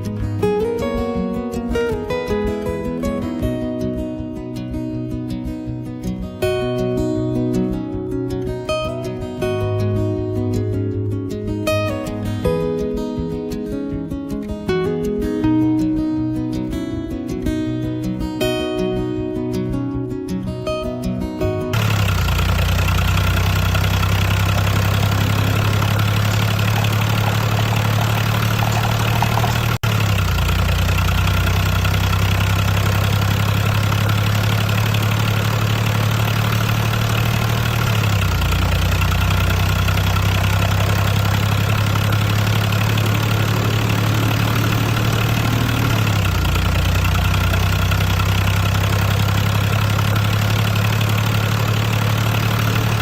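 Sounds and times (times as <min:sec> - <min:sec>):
low engine-like hum: 0:21.8 - 0:53.0.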